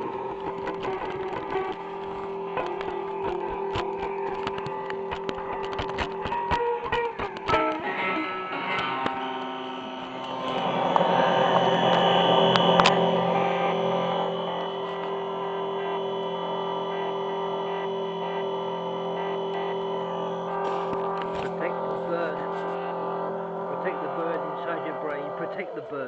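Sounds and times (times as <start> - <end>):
electric guitar droning notes: 0.0 - 26.0.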